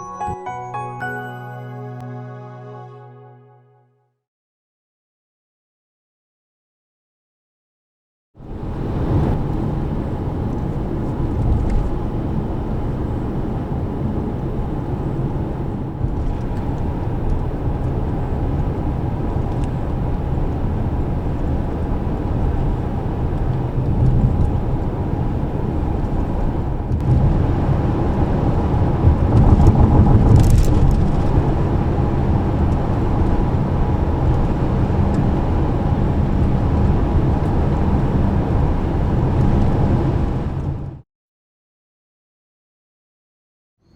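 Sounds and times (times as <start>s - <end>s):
road noise: 8.5s - 40.8s
wind noise: 8.5s - 40.9s
car engine at speed: 20.6s - 40.6s.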